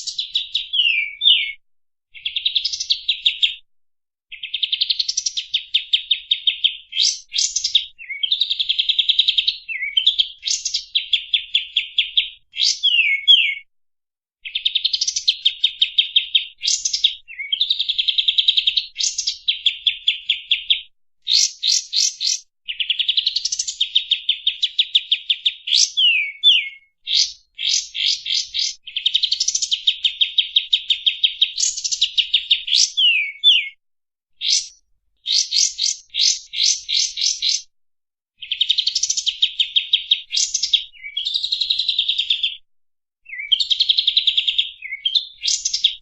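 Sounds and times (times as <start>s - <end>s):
bird singing rapid trills: 21.4s - 23.9s, 25.8s - 33.8s, 34.5s - 37.7s.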